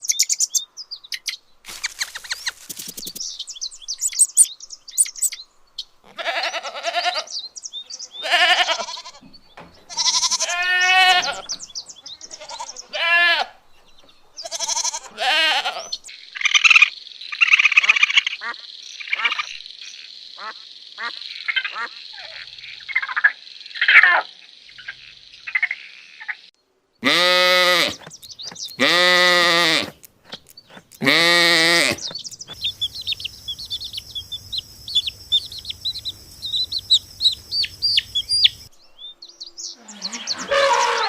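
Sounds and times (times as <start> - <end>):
wavering animal calls: 39.8 - 41.0.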